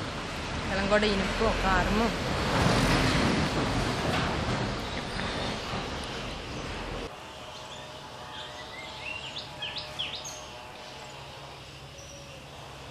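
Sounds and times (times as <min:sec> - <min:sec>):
rough rushing noise: 0:01.4 - 0:07.5
birds chirping: 0:04.8 - 0:12.8.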